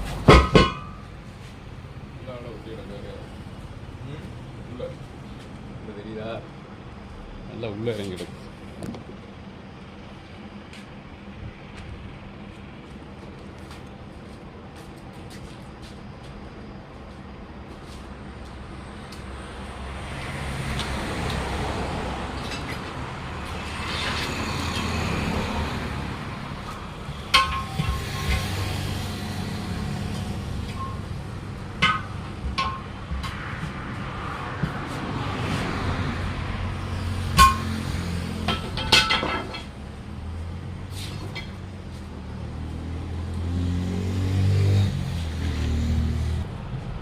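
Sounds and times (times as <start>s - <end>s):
sharp metal clank: 0.2s - 1.1s, 27.2s - 28.7s, 31.8s - 32.9s, 37.3s - 39.7s
low engine hum: 39.6s - 47.0s.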